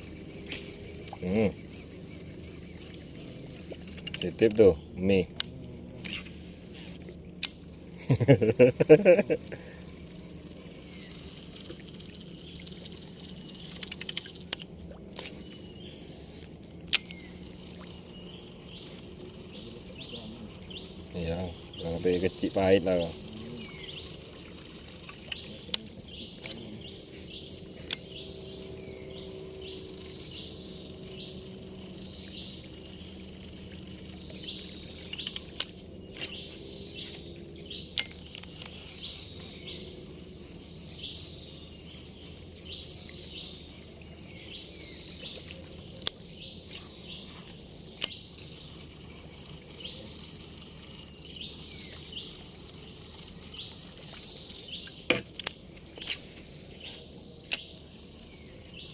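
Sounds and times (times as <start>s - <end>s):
sharp clicks: 13.6s - 15.4s, 16.9s - 17.3s, 47.9s - 48.3s, 54.8s - 56.2s, 57.4s - 57.8s.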